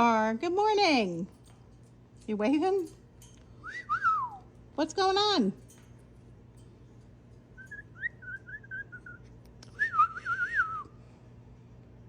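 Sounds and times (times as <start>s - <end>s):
parrot whistling: 7.6s - 9.2s.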